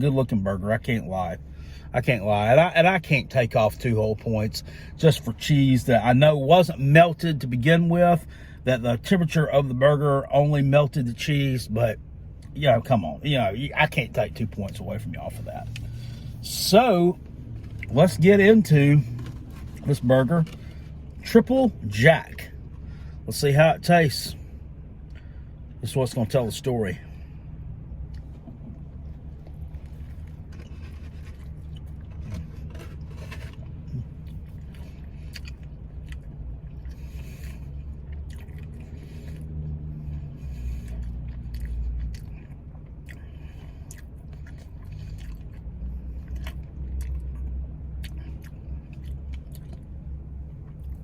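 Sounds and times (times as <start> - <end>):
steady low hum: 0.0 - 51.0
man chewing food: 15.4 - 16.6, 27.9 - 51.0.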